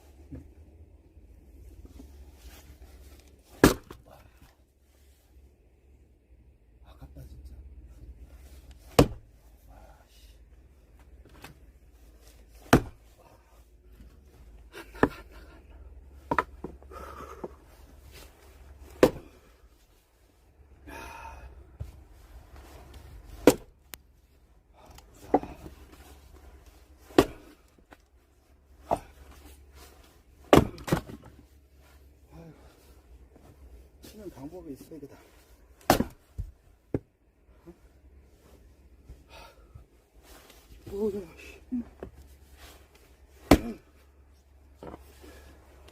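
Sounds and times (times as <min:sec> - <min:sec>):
axe chopping wood: 0:03.6 - 0:04.0, 0:08.9 - 0:09.3, 0:12.6 - 0:13.0, 0:14.8 - 0:15.3, 0:16.3 - 0:16.8, 0:18.9 - 0:19.5, 0:23.4 - 0:23.7, 0:25.2 - 0:25.7, 0:27.1 - 0:27.6, 0:28.8 - 0:29.2, 0:30.5 - 0:31.3, 0:35.8 - 0:37.1, 0:43.4 - 0:43.8.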